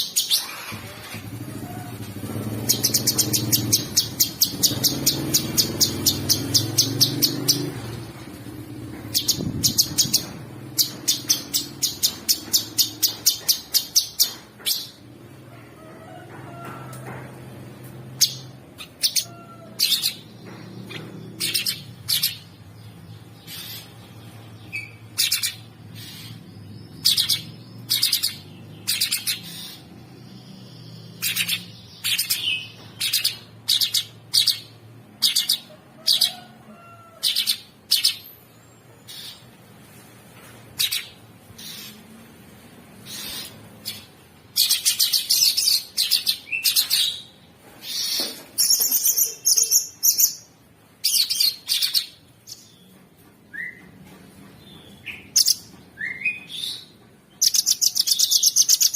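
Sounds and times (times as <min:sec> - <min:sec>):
songbird high chirps: 0:47.9 - 0:52.9.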